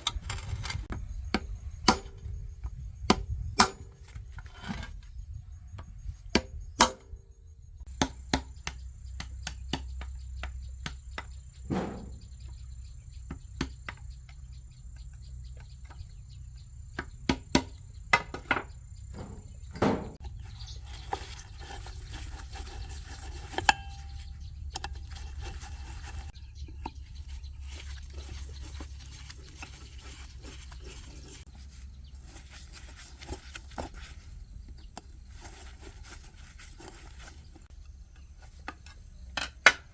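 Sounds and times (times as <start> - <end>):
metal parts and tools clicking: 0.0 - 0.9.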